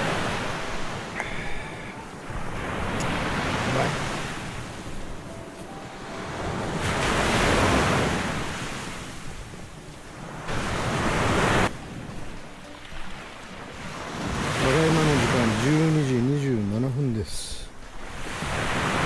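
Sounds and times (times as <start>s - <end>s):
wind noise on microphone: 0.0s - 12.4s
waves breaking on shore: 0.0s - 19.0s.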